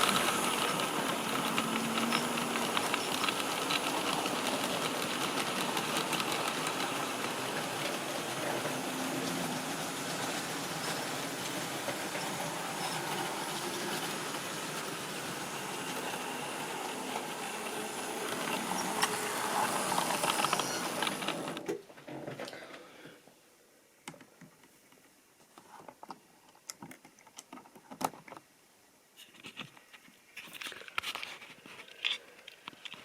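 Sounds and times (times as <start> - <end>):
model train motor whirring: 0.0 - 21.7
wheels clicking over rail: 0.0 - 21.8.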